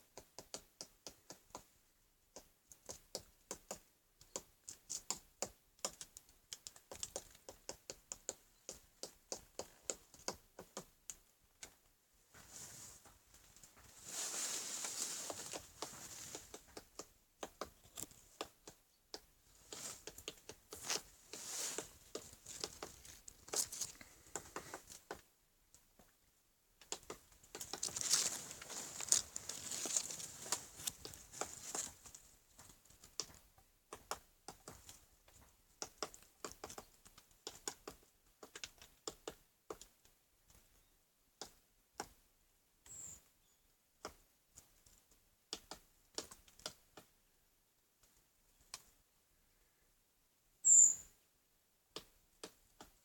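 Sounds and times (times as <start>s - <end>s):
woodpecker tapping on wood: 0.0s - 11.8s, 15.5s - 26.1s, 26.8s - 40.7s, 41.4s - 42.2s, 44.0s - 47.1s, 51.9s - 53.0s
wood crackling: 2.3s - 26.2s, 26.8s - 40.6s.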